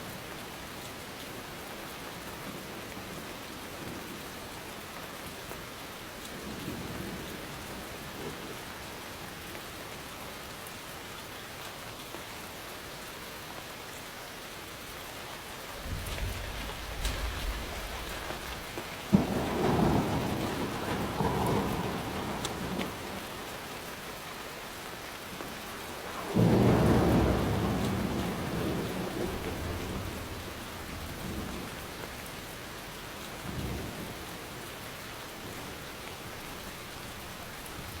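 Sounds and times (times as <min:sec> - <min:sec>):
rain falling: 0:00.0 - 0:38.0
thunder rumbling: 0:15.6 - 0:23.7, 0:26.1 - 0:31.9.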